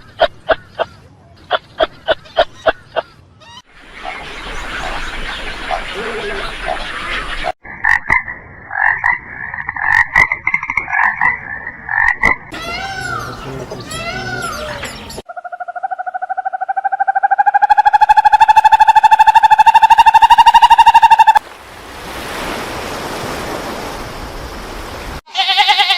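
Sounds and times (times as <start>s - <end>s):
frogs croaking: 3.8s - 13.7s, 15.2s - 21.4s
frog pulsing trill: 15.3s - 21.4s.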